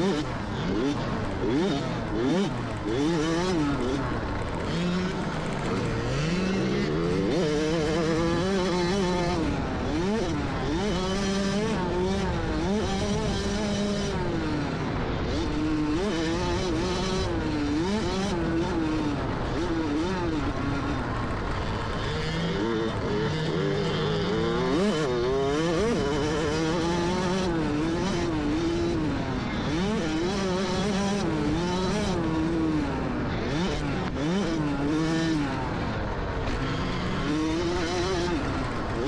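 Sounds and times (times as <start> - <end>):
dirt bike engines revving: 0.0 - 39.0.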